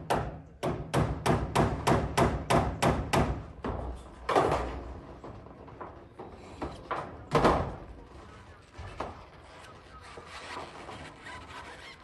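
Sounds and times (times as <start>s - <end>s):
knocks and bangs: 0.0s - 6.0s.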